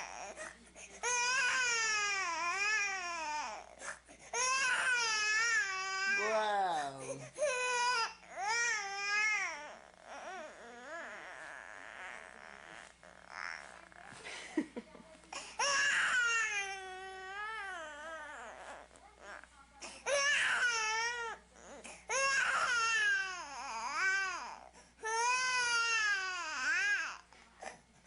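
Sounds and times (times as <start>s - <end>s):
infant crying: 0.0s - 14.1s, 15.4s - 27.2s.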